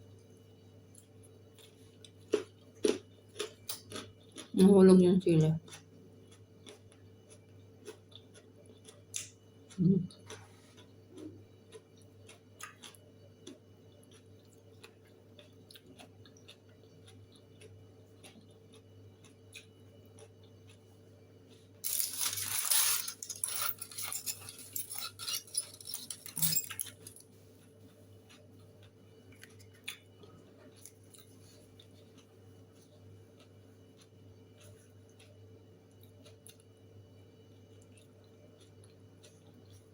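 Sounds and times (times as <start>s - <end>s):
low steady hum: 0.0s - 39.9s
crinkly rustling: 21.5s - 27.6s
small objects clicking and clinking: 21.8s - 27.2s.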